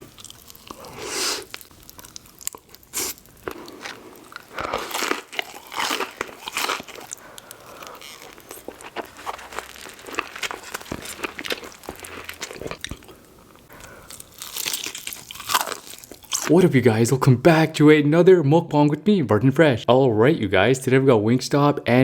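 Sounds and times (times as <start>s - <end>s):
chewing: 0.0s - 16.5s
crunchy bites into fried food: 0.1s - 7.2s, 7.8s - 13.1s, 14.1s - 16.5s.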